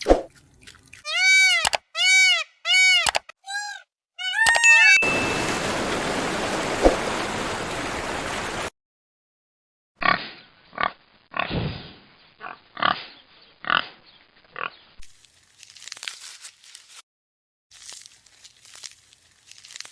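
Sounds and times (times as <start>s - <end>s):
pig grunts: 12.4s - 14.0s.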